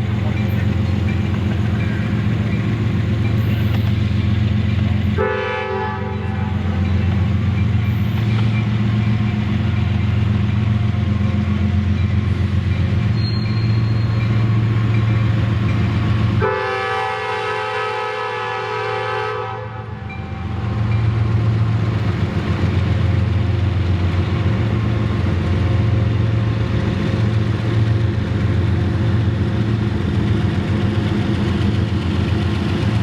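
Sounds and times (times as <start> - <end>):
diesel locomotive rumbling: 0.0 - 33.0
locomotive air horn: 5.2 - 6.6, 16.4 - 20.0.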